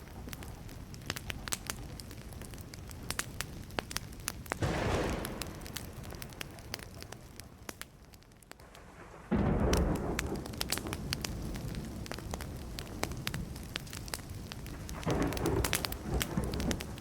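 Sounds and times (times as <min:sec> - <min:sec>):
campfire crackling and popping: 0:00.0 - 0:17.0
low thunder rumble: 0:04.6 - 0:07.6, 0:08.6 - 0:17.0.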